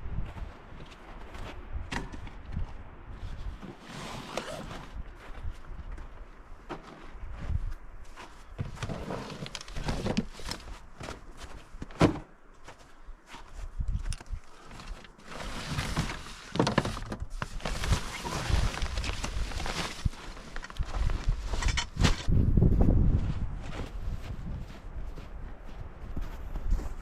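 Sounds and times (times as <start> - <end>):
footsteps on ground: 4.8 - 8.8, 18.6 - 27.0
rustling: 14.5 - 22.3.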